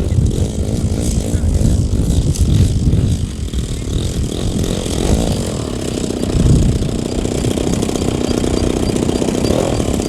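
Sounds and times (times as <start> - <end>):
model airplane engine: 0.0 - 10.0.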